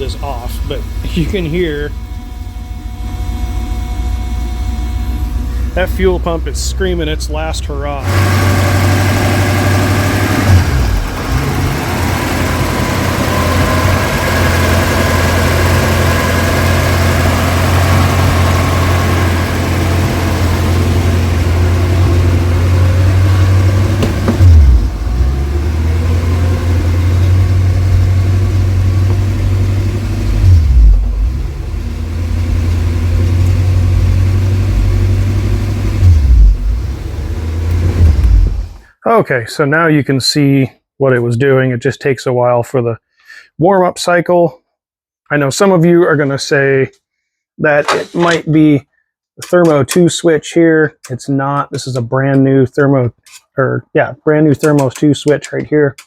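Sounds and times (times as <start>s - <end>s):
car engine surging idle: 0.0s - 38.8s
fuel pump whine: 0.0s - 38.9s.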